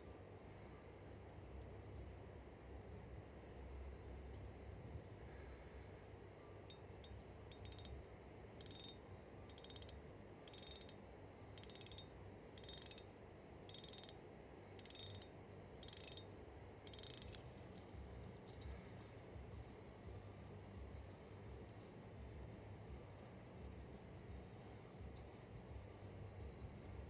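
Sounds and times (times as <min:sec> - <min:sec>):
spinning reel clicking: 0:07.0 - 0:08.0, 0:08.6 - 0:11.0, 0:11.6 - 0:13.1, 0:13.7 - 0:14.2, 0:14.8 - 0:16.3, 0:16.9 - 0:17.4.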